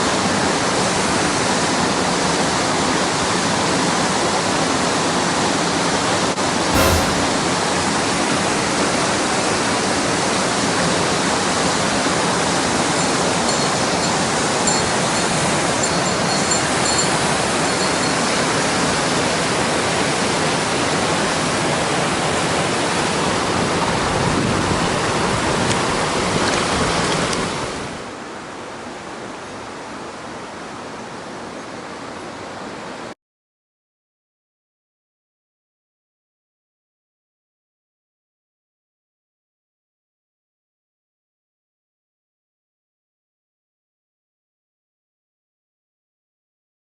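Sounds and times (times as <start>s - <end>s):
short knock: 6.8s - 7.6s.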